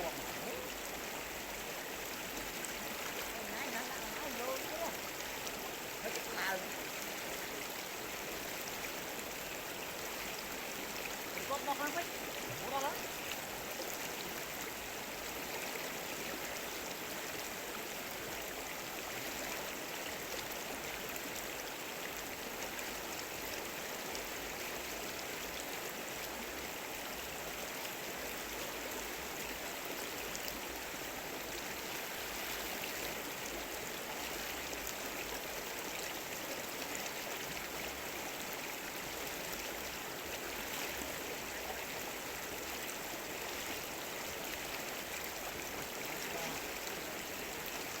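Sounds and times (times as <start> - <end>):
stream flowing: 0.0 - 48.0.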